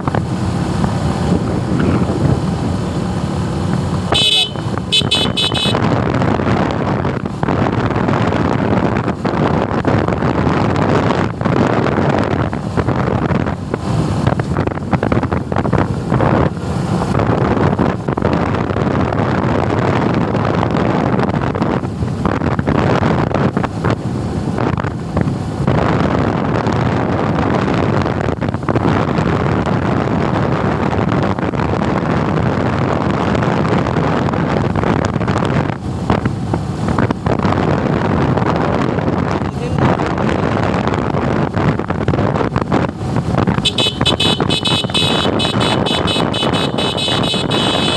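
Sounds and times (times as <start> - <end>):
motorcycle engine running: 0.0 - 30.5, 31.2 - 47.9
wind rushing over microphone: 0.0 - 47.9.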